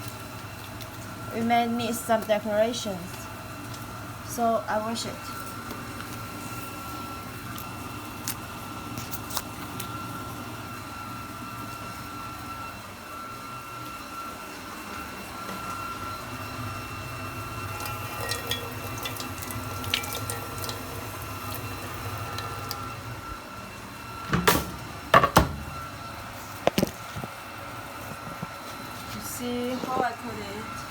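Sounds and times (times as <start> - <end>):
tap water running into sink: 17.6 - 22.8
small clicks and splashes: 17.8 - 20.8.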